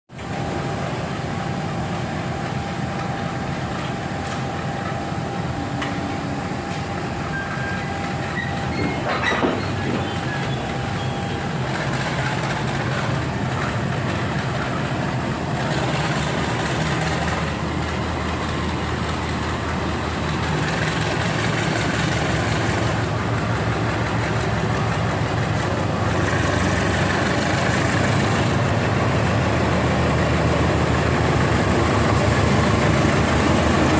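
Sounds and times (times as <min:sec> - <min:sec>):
diesel locomotive engine drone: 0:00.1 - 0:33.9.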